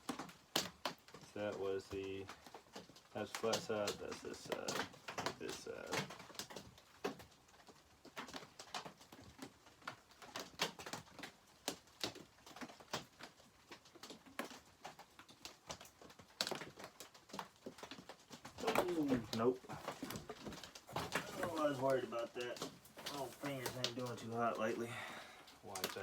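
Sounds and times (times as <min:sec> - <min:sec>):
light taps and clicks: 0:00.0 - 0:26.0
faint steady hiss: 0:18.5 - 0:26.0.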